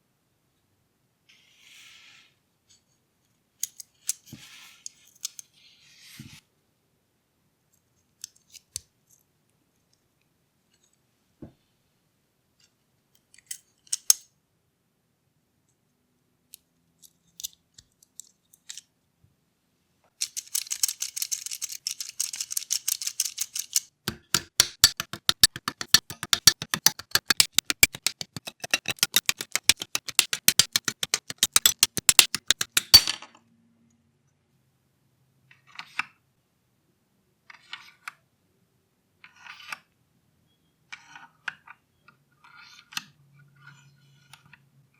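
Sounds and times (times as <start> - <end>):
fast run of clicking: 24.1 - 33.2
plastic parts clicking: 24.1 - 33.2.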